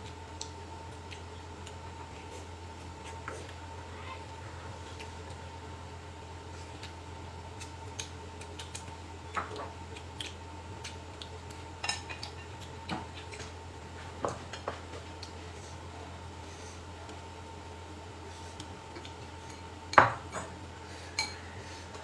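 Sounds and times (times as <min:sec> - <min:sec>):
steady low hum: 0:00.0 - 0:22.0
utensils clinking against dishes: 0:11.8 - 0:12.6, 0:19.5 - 0:21.6.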